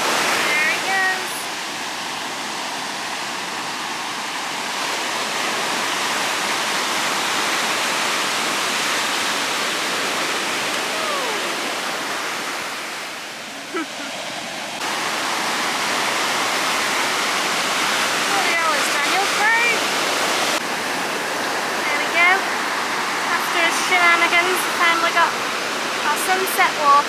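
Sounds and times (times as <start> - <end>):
sea surf breaking on beach: 0.0 - 27.0
faint distant voice: 10.9 - 11.7.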